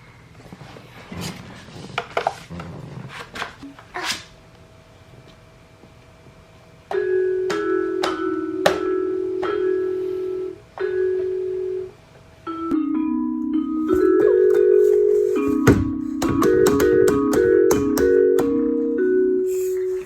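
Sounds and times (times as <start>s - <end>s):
toy playing chiming melody: 6.9s - 11.9s, 12.5s - 20.0s.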